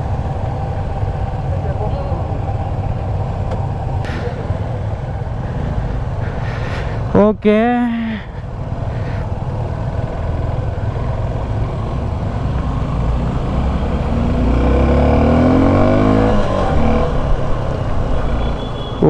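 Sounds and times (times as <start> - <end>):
motorcycle engine accelerating: 0.0 - 7.1, 8.3 - 19.0
wind rumble on microphone: 15.5 - 18.4.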